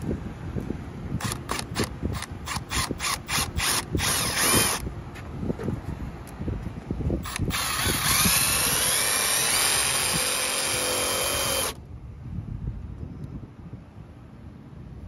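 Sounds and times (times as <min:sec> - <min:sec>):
power drill whining: 0:01.2 - 0:04.8, 0:07.2 - 0:11.8
ratcheting clicks: 0:01.2 - 0:04.8.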